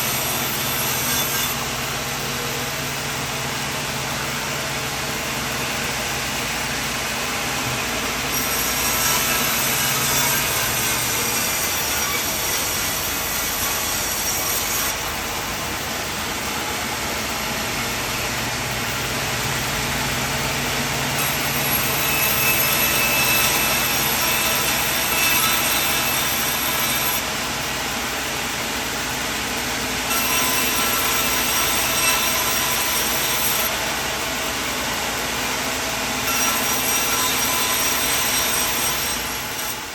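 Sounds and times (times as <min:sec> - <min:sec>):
saw blade cutting wood: 0:00.0 - 0:02.6, 0:05.2 - 0:17.3, 0:21.1 - 0:27.6, 0:30.0 - 0:39.9
sawmill engine running: 0:00.0 - 0:39.9.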